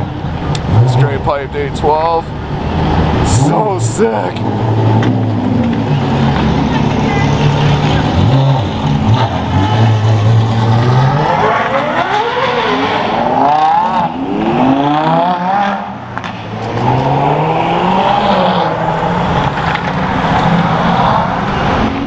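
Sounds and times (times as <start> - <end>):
sports car engine accelerating: 0.1 - 22.0.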